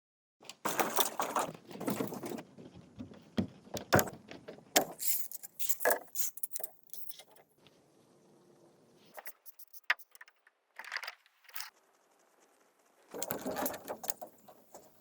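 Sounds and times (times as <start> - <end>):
rustling: 0.5 - 8.3
hard objects knocking and clicking: 0.6 - 6.7.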